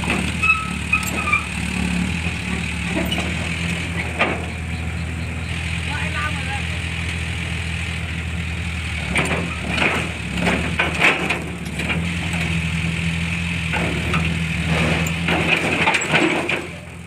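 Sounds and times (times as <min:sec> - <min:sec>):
metal clanks and knocks: 0:00.0 - 0:01.6, 0:02.2 - 0:05.3, 0:09.1 - 0:12.6, 0:13.7 - 0:17.0
heavy diesel engine running: 0:00.0 - 0:17.0.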